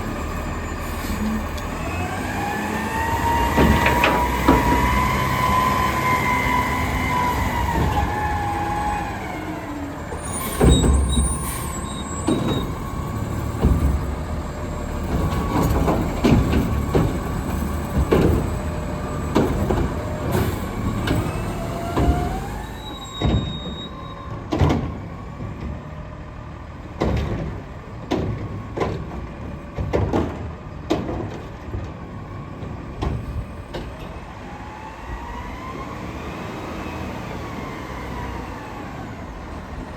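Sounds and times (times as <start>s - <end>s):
diesel truck engine: 0.0s - 39.9s
metal clanks and bangs: 3.5s - 4.9s.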